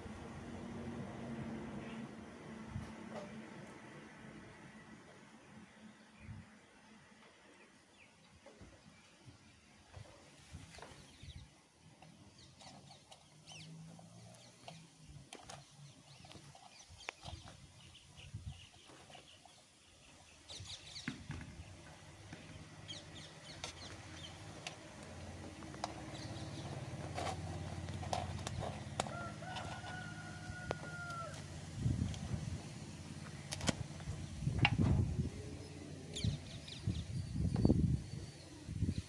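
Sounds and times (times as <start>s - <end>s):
birds chirping: 10.6s - 31.4s, 33.0s - 39.0s
low wind rumble: 20.1s - 39.0s
drawn-out bird call: 21.8s - 31.6s.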